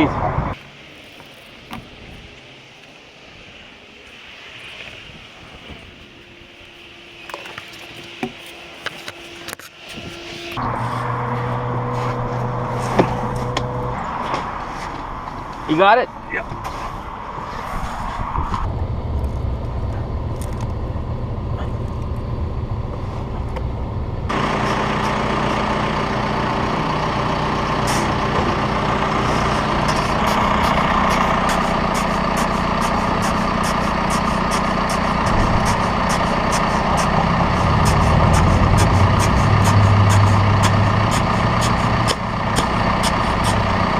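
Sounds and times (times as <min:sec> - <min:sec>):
diesel machinery engine running: 0:06.6 - 0:16.3, 0:18.6 - 0:43.9.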